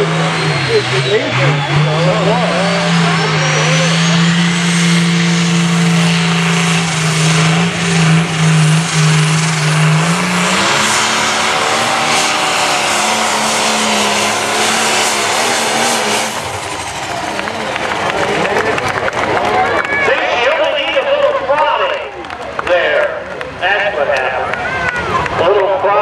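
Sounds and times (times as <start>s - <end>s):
diesel engine at full throttle: 0.0s - 26.0s
high turbo whine: 0.0s - 26.0s.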